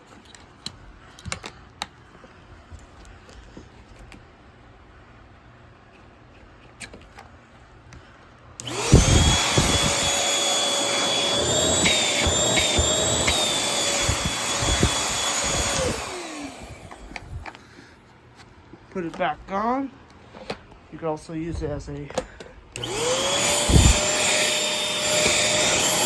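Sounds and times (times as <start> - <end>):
vacuum motor whine: 8.6 - 17.6, 22.8 - 26.0.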